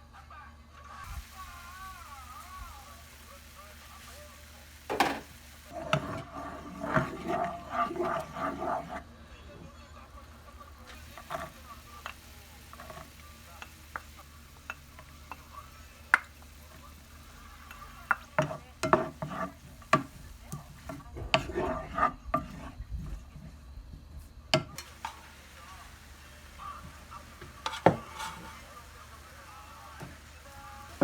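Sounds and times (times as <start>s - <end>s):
utensil stirring and knocking a pot: 1.0s - 9.1s, 10.0s - 23.5s, 24.5s - 31.0s.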